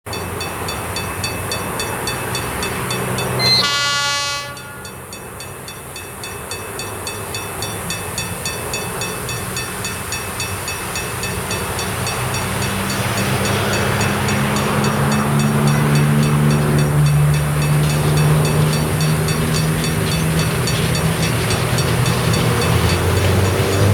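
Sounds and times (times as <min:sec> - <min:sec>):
locomotive engine rumble: 0:00.1 - 0:23.9
locomotive horn blast: 0:02.0 - 0:05.2.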